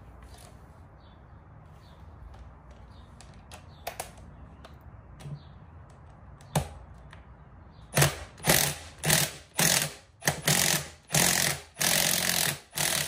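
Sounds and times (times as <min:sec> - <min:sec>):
impact wrench hammering: 0:07.9 - 0:13.0.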